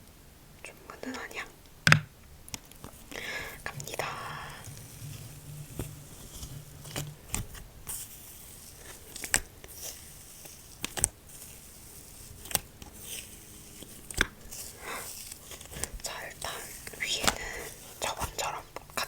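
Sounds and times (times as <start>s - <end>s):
slime popping and clicking: 1.9s - 2.7s
slime squishing: 1.9s - 19.0s.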